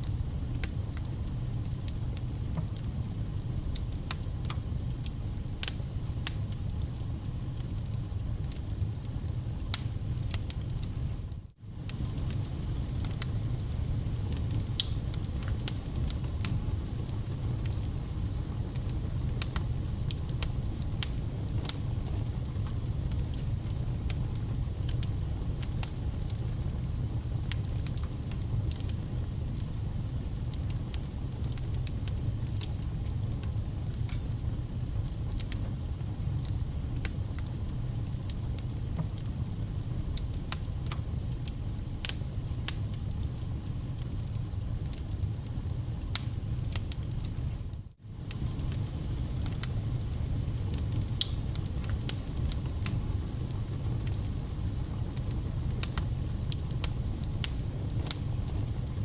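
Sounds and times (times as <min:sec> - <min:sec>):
campfire crackling: 0:00.0 - 0:59.0
low rumble of flame: 0:00.0 - 0:59.0
sharp pops and snaps: 0:46.1 - 0:47.1, 0:50.7 - 0:53.0, 0:55.2 - 0:58.2.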